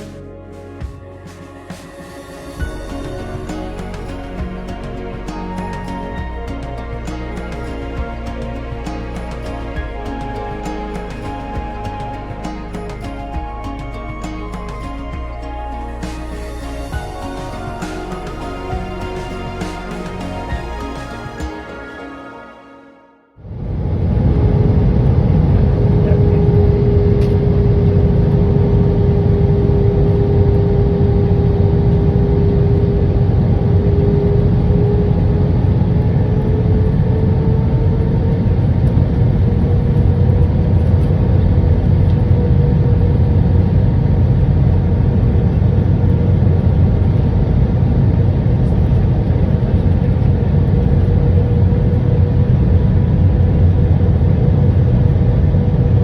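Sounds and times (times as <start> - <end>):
airplane cabin engine rumble: 23.4 - 56.0.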